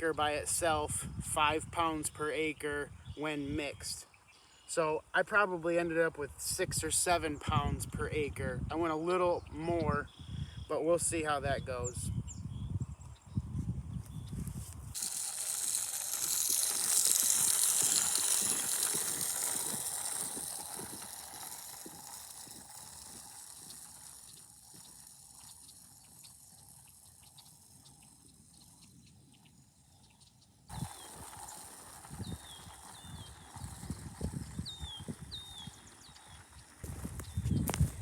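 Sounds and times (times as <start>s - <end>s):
seed spreader ticking: 14.9s - 38.0s.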